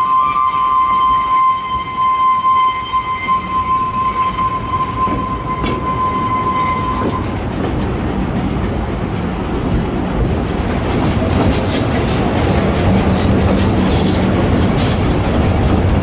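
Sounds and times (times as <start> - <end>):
high-pitched steam whistle tone: 0.0 - 7.2
train wheels rumbling and clattering: 0.0 - 16.0.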